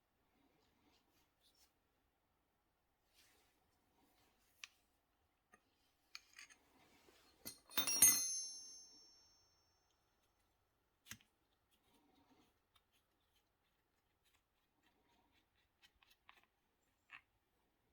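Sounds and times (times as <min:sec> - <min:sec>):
metal object clattering and ringing: 0:07.5 - 0:09.4.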